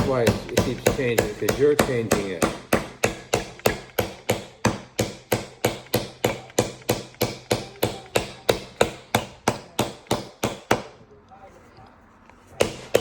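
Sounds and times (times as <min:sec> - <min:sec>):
hammer driving nail into wood: 0:00.0 - 0:11.0, 0:12.6 - 0:13.0.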